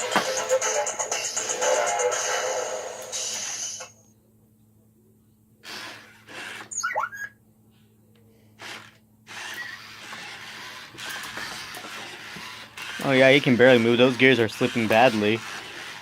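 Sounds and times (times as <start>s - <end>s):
toy robot motors whirring: 5.6s - 7.3s, 8.6s - 16.0s.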